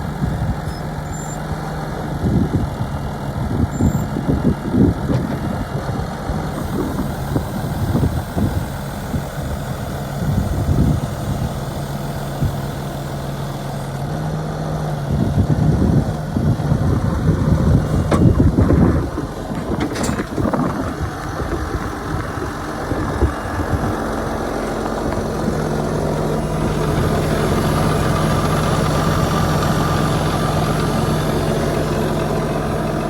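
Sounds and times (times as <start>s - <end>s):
tractor diesel engine idling: 0.0s - 33.0s
bursts of low rumble: 15.1s - 28.6s.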